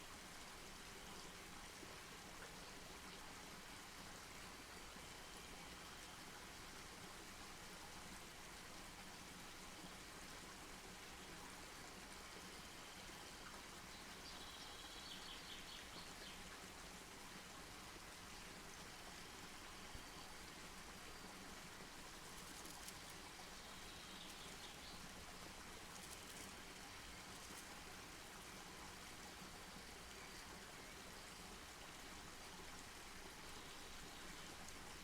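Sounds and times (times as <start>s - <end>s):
campfire hissing and crackling: 17.7s - 35.0s.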